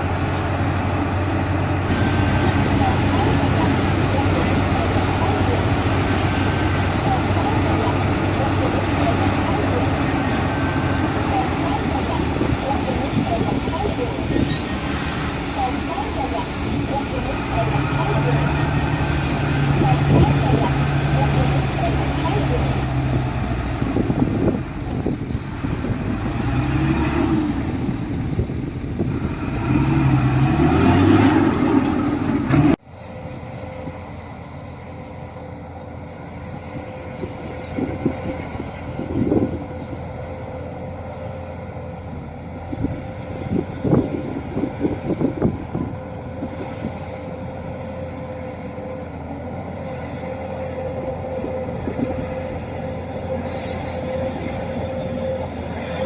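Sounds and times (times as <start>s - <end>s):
diesel engine running: 0.0s - 56.0s
held whine: 33.2s - 56.0s.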